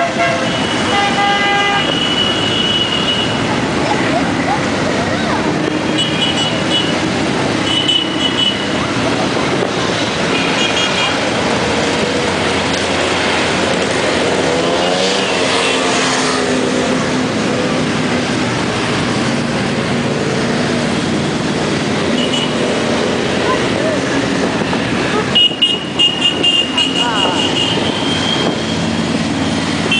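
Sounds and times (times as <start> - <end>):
motorcycles riding past: 3.4 - 26.0.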